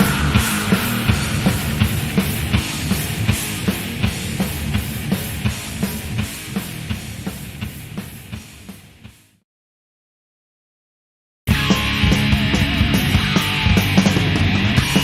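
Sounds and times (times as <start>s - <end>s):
drum hits: 0.0s - 8.7s
thrash metal band playing: 0.0s - 9.2s, 11.5s - 15.0s.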